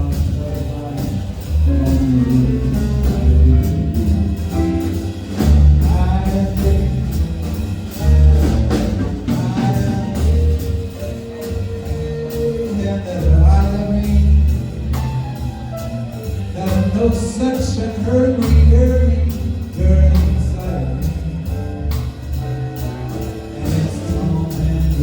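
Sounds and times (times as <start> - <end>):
person singing: 0.0 - 8.0, 8.6 - 15.0, 16.6 - 21.7, 23.1 - 25.0
band playing a song: 0.0 - 25.0
drum kit beat: 0.0 - 25.0.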